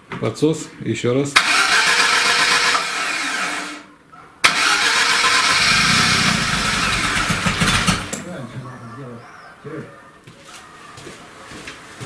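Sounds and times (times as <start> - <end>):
starter motor cranking engine: 1.4 - 8.4.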